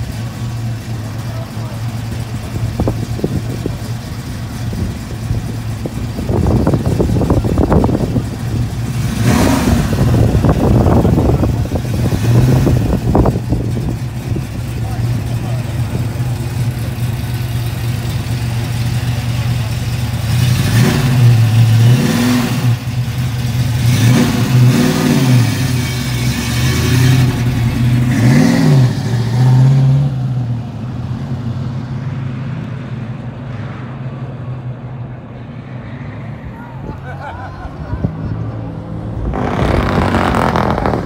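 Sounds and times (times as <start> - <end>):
car engine idling and revving: 0.0 - 41.0.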